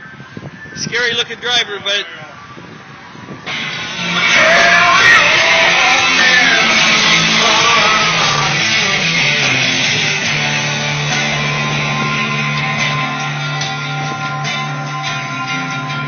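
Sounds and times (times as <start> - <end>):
loud guitar music: 3.5 - 16.0.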